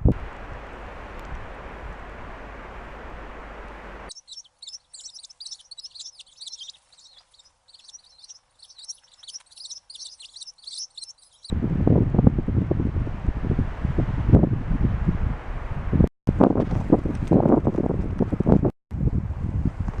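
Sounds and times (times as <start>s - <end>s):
wind on microphone: 0.0s - 4.1s, 11.5s - 20.0s
small birds chirping: 2.0s - 11.5s.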